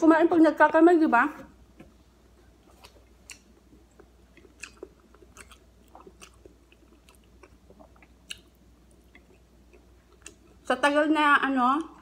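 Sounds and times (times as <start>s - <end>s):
chewing soft food: 1.8s - 10.7s.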